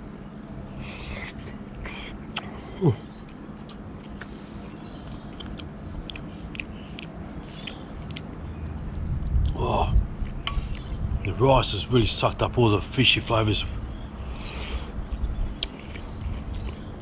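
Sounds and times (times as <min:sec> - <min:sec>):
man humming: 0:01.2 - 0:03.0, 0:09.5 - 0:10.0
chewing with wet mouth clicks: 0:02.3 - 0:02.6, 0:03.2 - 0:04.4, 0:05.0 - 0:09.6, 0:10.2 - 0:10.9, 0:15.0 - 0:17.0.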